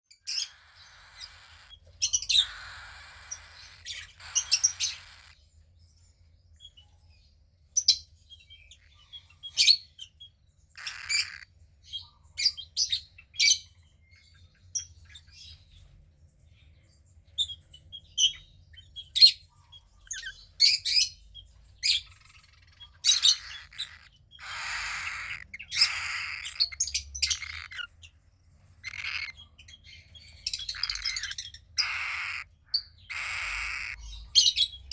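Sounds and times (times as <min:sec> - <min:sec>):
cockatiel chick chirping: 0:00.2 - 0:05.4, 0:10.8 - 0:11.5, 0:21.8 - 0:28.0, 0:28.8 - 0:34.9
harsh raspy bird calls: 0:00.2 - 0:05.4, 0:10.7 - 0:11.6, 0:21.8 - 0:28.1, 0:28.7 - 0:34.9.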